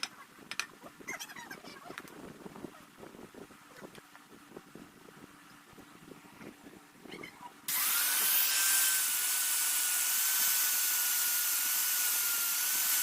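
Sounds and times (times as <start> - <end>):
electric grinder grinding steel: 7.7 - 13.0.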